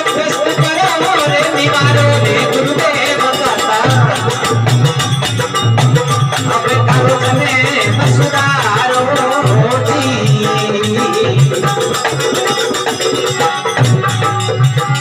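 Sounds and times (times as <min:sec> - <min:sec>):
fast clacking percussion: 0:00.0 - 0:15.0
pulsing drum: 0:00.0 - 0:15.0.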